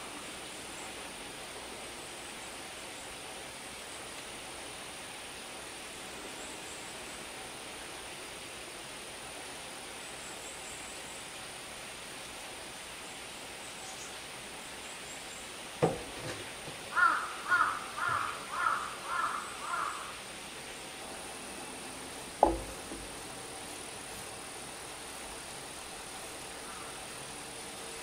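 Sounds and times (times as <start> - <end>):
steady outdoor hiss: 0.0 - 28.0
bird calling: 15.8 - 20.2, 26.6 - 27.2
sharp knock: 22.4 - 23.1.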